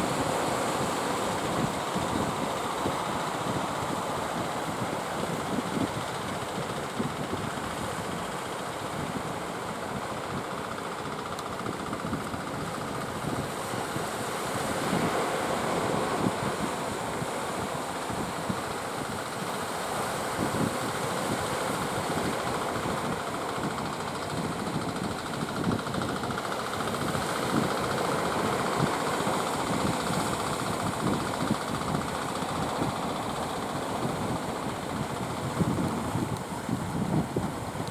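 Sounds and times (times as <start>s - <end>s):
speed boat engine running: 13.0s - 37.9s
wind on microphone: 20.3s - 37.9s.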